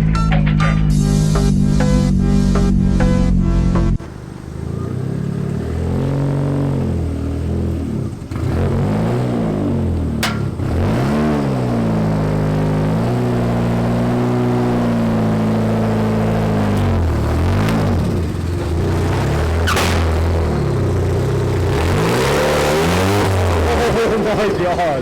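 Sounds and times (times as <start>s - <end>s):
car engine revving: 0.0s - 25.0s
sharp click: 10.2s - 10.6s, 19.6s - 20.4s.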